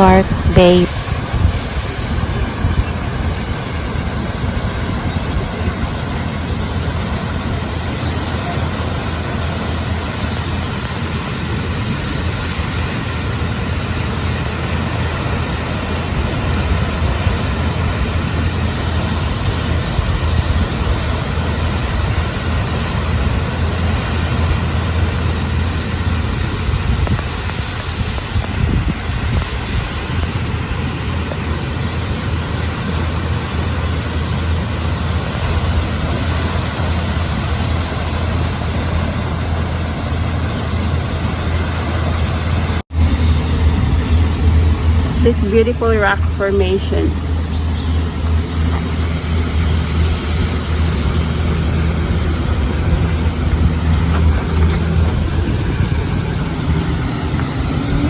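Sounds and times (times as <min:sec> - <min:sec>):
wind buffeting microphone: 0:26.0 - 0:30.8.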